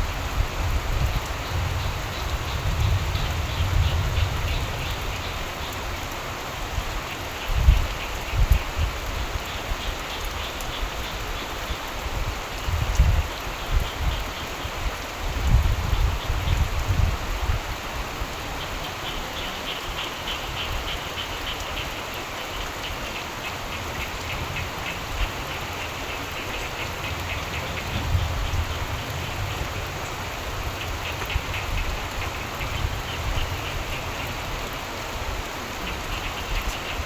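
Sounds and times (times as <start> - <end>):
steady rain falling: 0.0 - 37.0
frogs calling: 1.0 - 6.2, 18.2 - 37.0.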